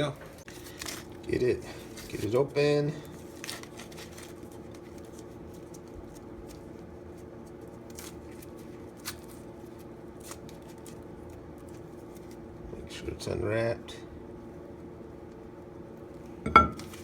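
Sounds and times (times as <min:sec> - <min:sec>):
steady low hum: 0:00.0 - 0:17.0
paper rustling: 0:00.3 - 0:12.4.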